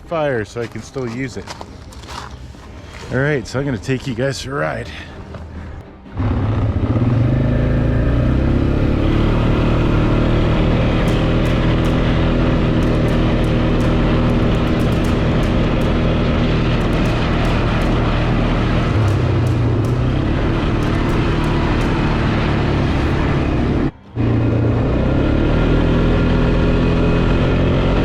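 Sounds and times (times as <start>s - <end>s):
atv engine: 6.1s - 28.0s.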